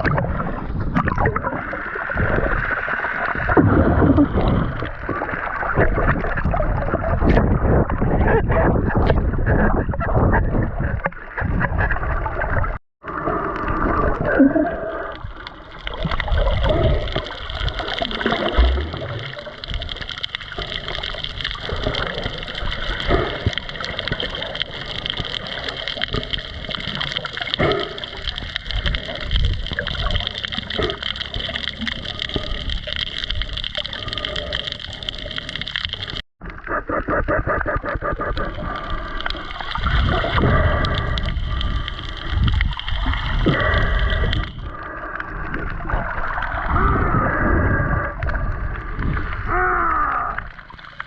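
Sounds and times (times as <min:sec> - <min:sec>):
water sloshing and gurgling: 0:00.0 - 0:51.0
low rumble: 0:15.9 - 0:24.1.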